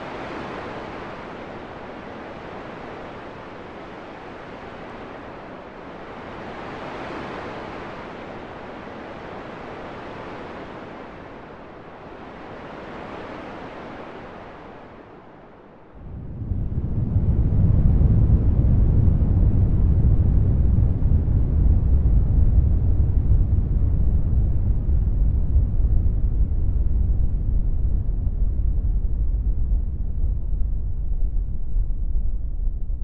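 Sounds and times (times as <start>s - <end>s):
deep rumble: 16.0s - 33.0s.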